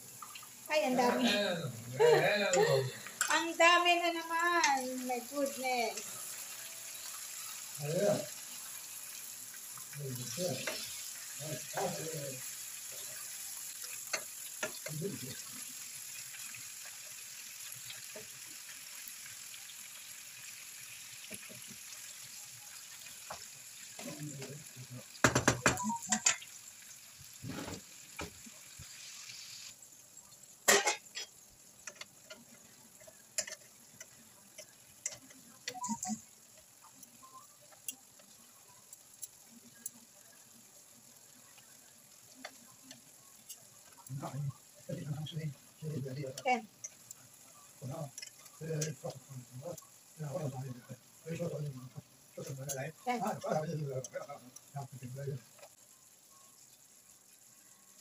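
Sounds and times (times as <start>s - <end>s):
chicken sizzling in a frying pan: 0.0s - 58.0s
utensil knocking against pan: 25.2s - 25.8s.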